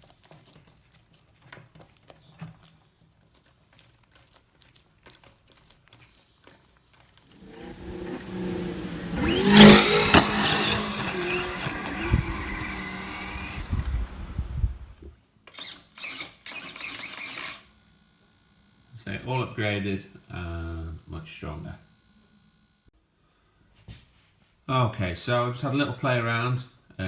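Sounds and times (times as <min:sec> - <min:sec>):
electric motor revving: 0:07.4 - 0:15.0
short noisy bursts: 0:07.4 - 0:15.0.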